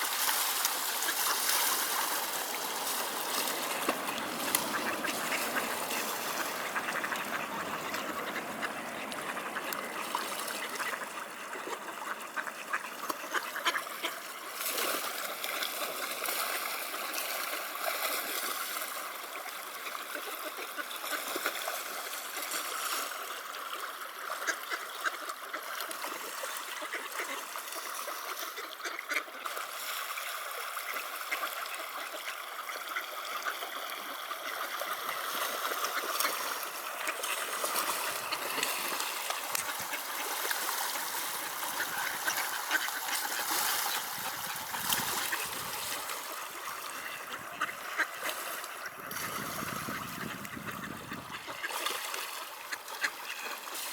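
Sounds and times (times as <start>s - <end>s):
water splashing: 0.0s - 19.6s, 30.8s - 53.9s
flowing river water: 0.0s - 53.9s
ducks quacking: 0.6s - 14.4s, 26.5s - 29.4s, 30.9s - 53.8s.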